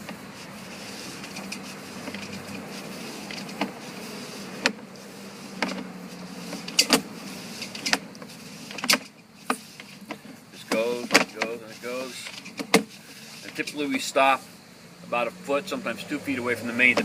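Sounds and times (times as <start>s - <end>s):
steady low hum: 0.0s - 17.0s
cable clicks and knocks: 6.5s - 11.6s.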